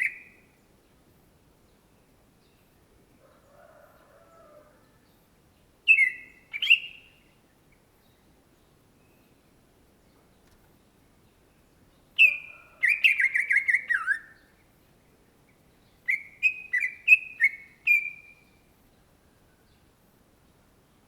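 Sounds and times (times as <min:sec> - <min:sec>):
bird whistles: 0:05.9 - 0:07.1, 0:12.2 - 0:14.4, 0:16.1 - 0:18.4.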